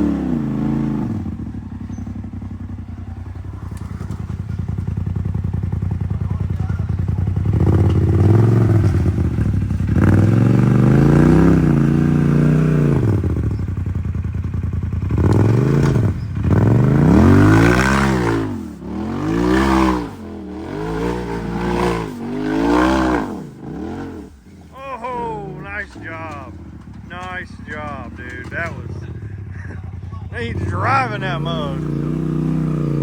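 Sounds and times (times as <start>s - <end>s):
engine revving hard: 0.0s - 1.4s, 7.5s - 13.3s, 15.1s - 29.1s, 30.4s - 33.0s.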